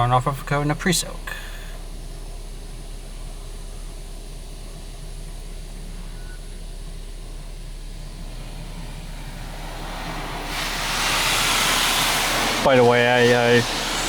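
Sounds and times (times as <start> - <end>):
car wash low hum: 0.0 - 14.0
water jets spraying on car: 6.6 - 14.0.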